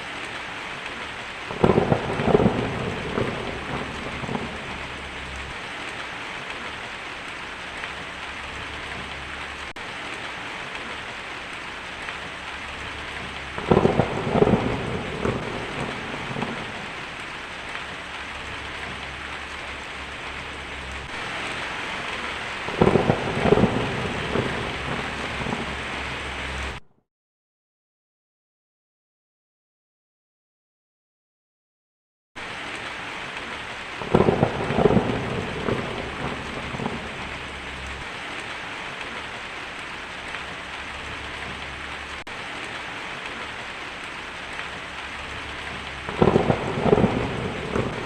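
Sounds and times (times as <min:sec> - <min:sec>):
heavy rain: 0:00.0 - 0:26.8, 0:32.4 - 0:48.0
thunderclaps: 0:00.9 - 0:06.8, 0:12.0 - 0:26.8, 0:32.8 - 0:39.2, 0:44.4 - 0:48.0.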